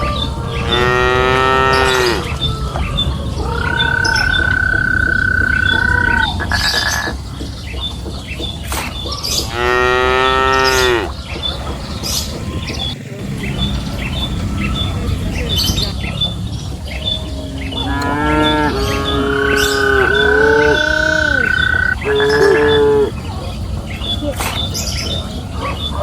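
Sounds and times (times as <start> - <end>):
cattle mooing: 0.3 - 2.8, 3.4 - 6.5, 9.5 - 11.1, 17.8 - 23.1.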